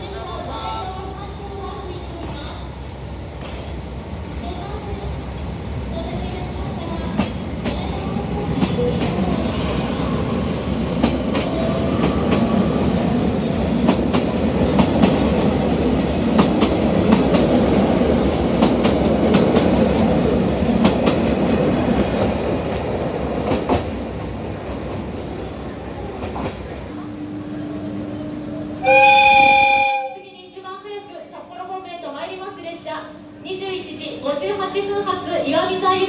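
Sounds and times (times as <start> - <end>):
train wheels clicking over rail joints: 20.8 - 25.1.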